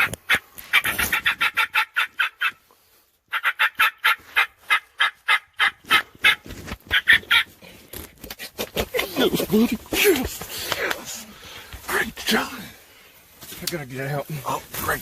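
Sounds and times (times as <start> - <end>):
wild turkey calling: 0.0 - 2.6, 3.3 - 7.5.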